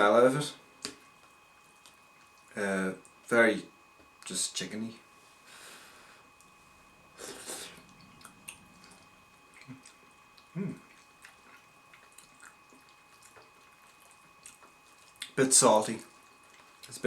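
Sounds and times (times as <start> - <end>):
person chewing noodles: 7.1 - 15.4, 16.1 - 16.9.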